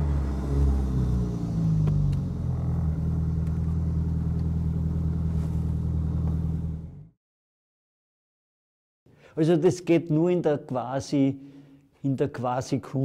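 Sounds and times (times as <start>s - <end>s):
car engine idling: 0.0s - 7.1s.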